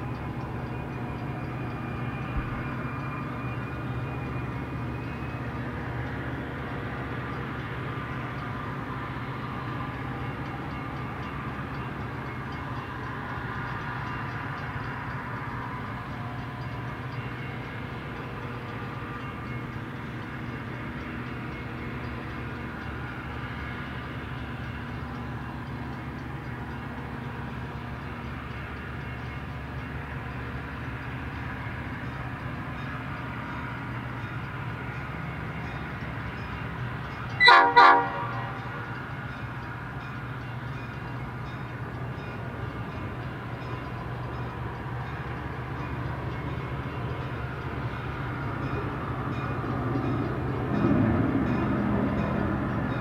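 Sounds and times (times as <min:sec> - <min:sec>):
diesel locomotive running: 0:00.0 - 0:53.0
train horn blasts: 0:37.4 - 0:38.8.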